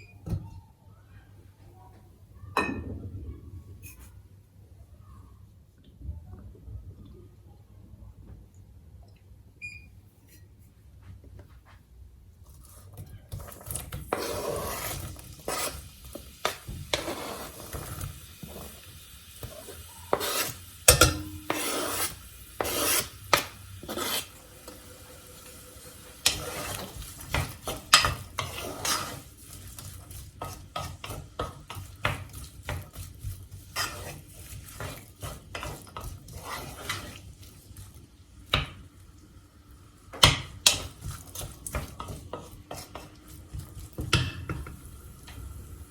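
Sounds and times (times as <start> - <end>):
kitchen utensils scraping and clinking: 12.5 - 38.0, 40.1 - 45.5.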